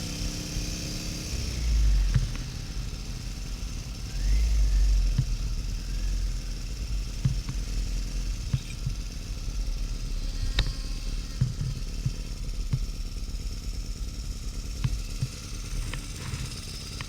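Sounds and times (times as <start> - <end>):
motorcycle engine rumbling: 0.0 - 17.0
sharp ticks: 4.2 - 13.6, 14.6 - 17.0.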